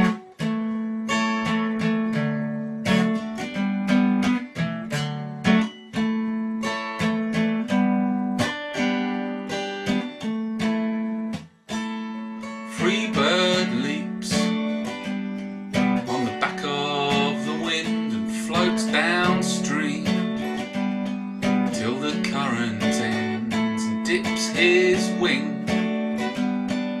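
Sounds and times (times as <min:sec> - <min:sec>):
acoustic guitar strumming: 0:00.0 - 0:27.0
person singing: 0:12.7 - 0:14.9, 0:16.0 - 0:20.6, 0:21.5 - 0:26.0.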